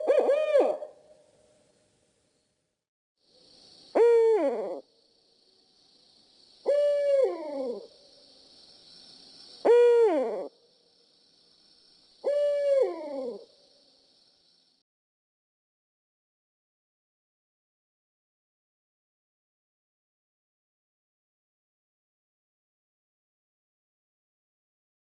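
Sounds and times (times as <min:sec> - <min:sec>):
owl hooting: 0:00.0 - 0:01.1, 0:03.9 - 0:04.9, 0:06.6 - 0:08.0, 0:09.6 - 0:10.5, 0:12.2 - 0:13.6.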